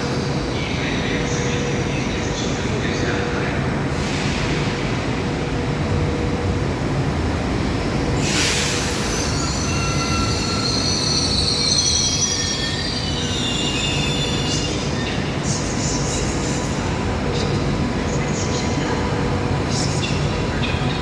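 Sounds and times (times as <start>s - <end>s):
train rumbling slowly: 0.0s - 21.0s
high-pitched wheel squeal: 9.0s - 14.6s.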